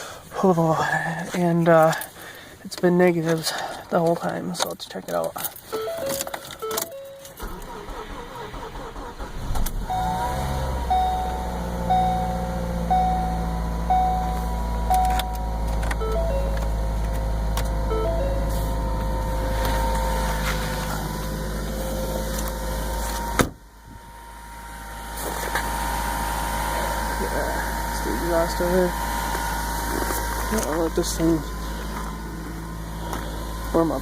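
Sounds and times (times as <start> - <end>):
car engine starting and idling: 0.0 - 34.0
dashboard chime: 5.8 - 7.3, 9.9 - 16.7, 17.8 - 20.4.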